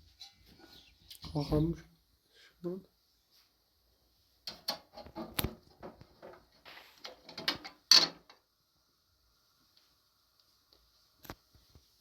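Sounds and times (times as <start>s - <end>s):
objects clattering: 4.5s - 8.4s.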